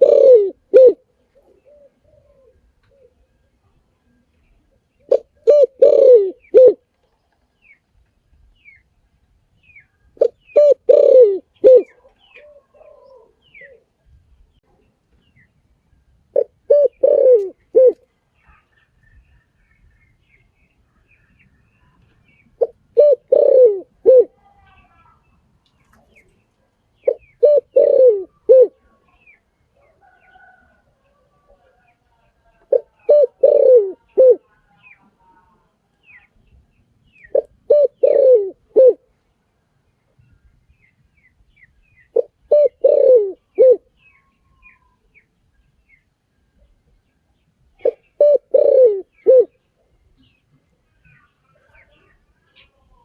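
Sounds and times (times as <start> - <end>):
dove cooing: 0.0 - 3.4, 5.0 - 6.8, 10.2 - 14.0, 16.3 - 18.0, 22.6 - 24.4, 27.0 - 28.9, 32.7 - 34.5, 37.3 - 39.1, 42.1 - 43.9, 47.8 - 49.6
small birds chirping: 1.2 - 53.0.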